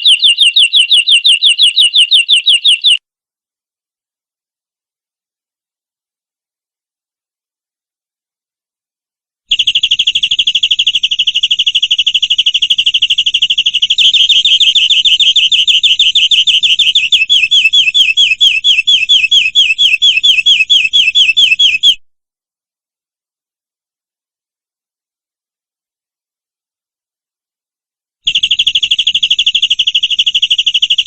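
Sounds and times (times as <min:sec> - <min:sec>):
canary singing trills: 0:00.0 - 0:03.0, 0:09.5 - 0:22.0.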